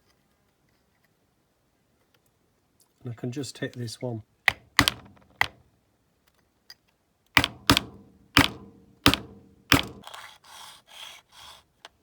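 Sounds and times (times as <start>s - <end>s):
sharp metal taps ringing: 4.5s - 5.6s, 7.4s - 10.0s
rubbing and handling noise: 7.9s - 12.0s.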